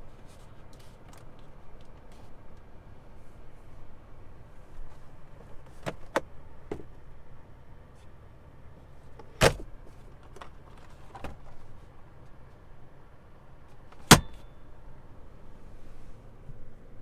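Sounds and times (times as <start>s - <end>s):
latch clicks: 5.7s - 6.9s, 9.2s - 11.5s, 13.9s - 14.5s
door shutting thump: 9.4s - 9.7s, 14.0s - 14.4s.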